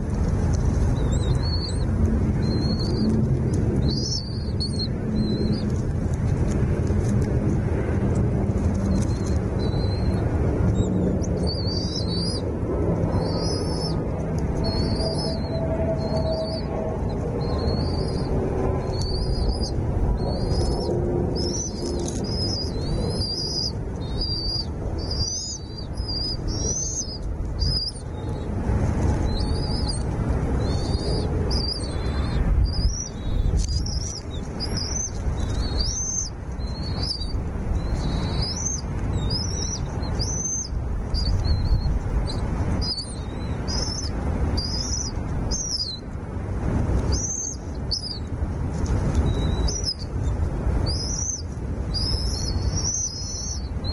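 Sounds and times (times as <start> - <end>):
low rumbling noise: 0.0 - 53.9
small bird chirping: 8.9 - 12.5, 13.1 - 14.0, 14.6 - 16.7, 17.4 - 28.4, 29.2 - 46.0, 47.1 - 48.3, 49.2 - 50.1, 50.8 - 53.9.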